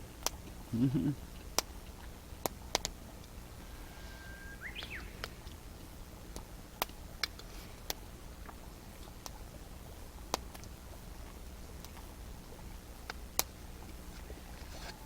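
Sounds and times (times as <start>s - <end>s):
bird whistling call: 3.7s - 5.4s.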